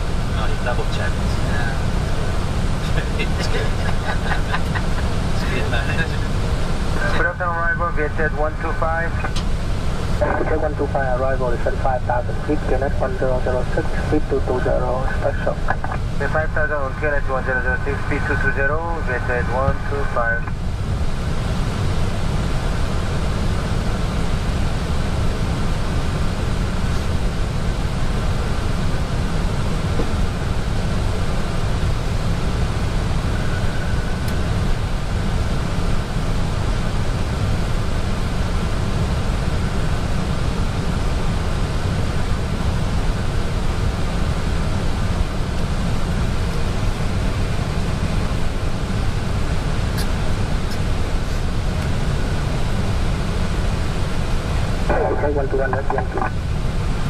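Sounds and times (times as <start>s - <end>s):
deep low rumble: 54.8s - 56.5s.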